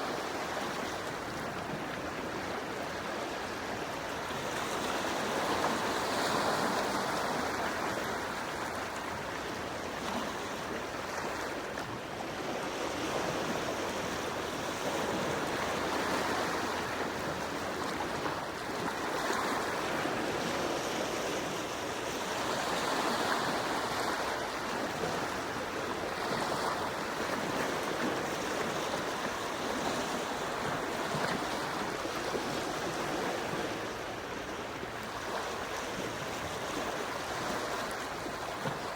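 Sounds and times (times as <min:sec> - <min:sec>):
sea waves washing onto shore: 0:00.0 - 0:38.9.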